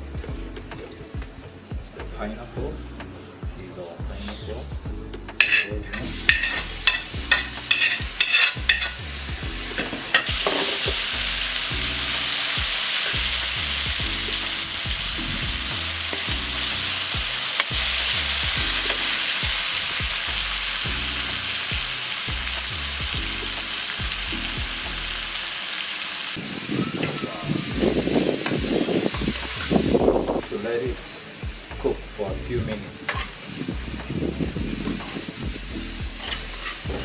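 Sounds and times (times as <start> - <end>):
food sizzling in oil: 5.3 - 37.0
utensil clinking against pan: 5.4 - 9.0.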